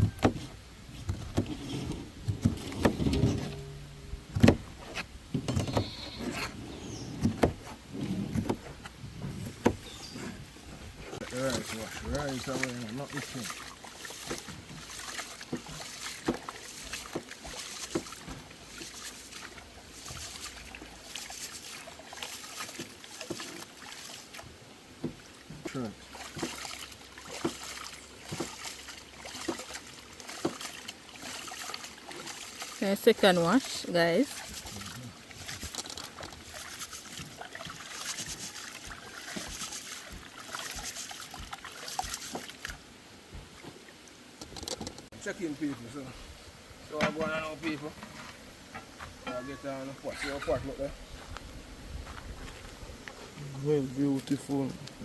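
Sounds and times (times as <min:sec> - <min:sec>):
water sloshing: 0:00.0 - 0:51.4.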